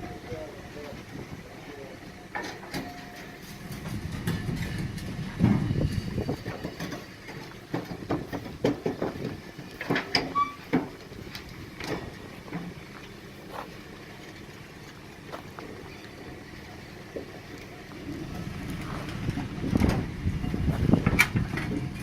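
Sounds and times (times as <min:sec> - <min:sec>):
railway vehicle rumbling: 0:00.0 - 0:22.0
metallic clanks and knocks: 0:02.3 - 0:12.8.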